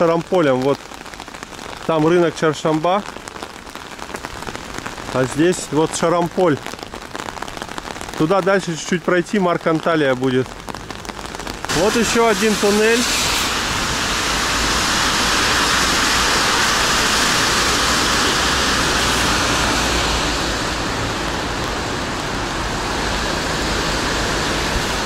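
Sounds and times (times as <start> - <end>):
car tyres on wet asphalt: 0.0 - 25.0
rain: 0.0 - 25.0.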